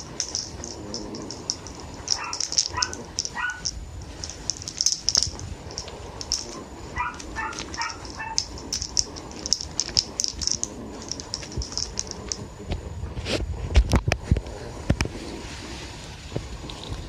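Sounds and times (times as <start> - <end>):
toy ball rattling: 0.0 - 12.5.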